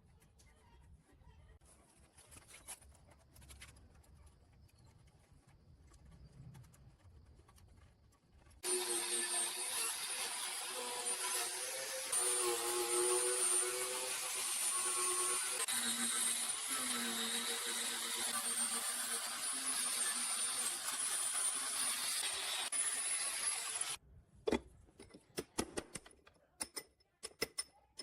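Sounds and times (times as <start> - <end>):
power tool motor whining: 8.6 - 24.0.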